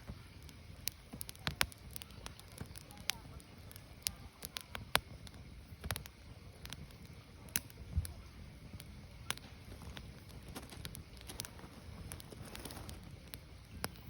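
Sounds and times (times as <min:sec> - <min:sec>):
firewood crackling and popping: 0:00.0 - 0:14.0
low rumble of fire: 0:00.0 - 0:14.0.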